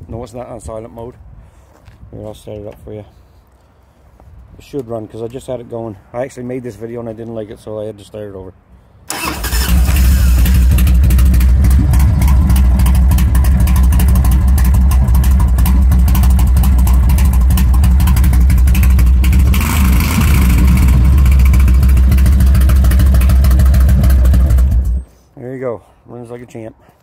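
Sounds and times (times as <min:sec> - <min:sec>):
motorcycle engine running: 0:09.7 - 0:25.0.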